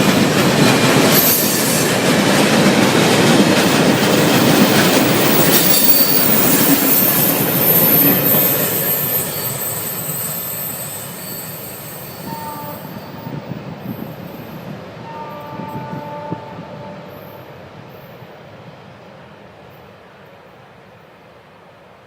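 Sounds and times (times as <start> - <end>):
freight train rumbling past: 0.0 - 22.0
train wheels squealing: 1.0 - 2.2, 3.7 - 15.4.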